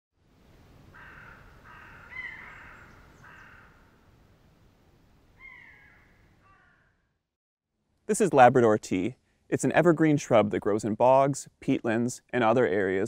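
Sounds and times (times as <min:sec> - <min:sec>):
harsh bird calls: 0:01.0 - 0:03.9, 0:05.4 - 0:07.0.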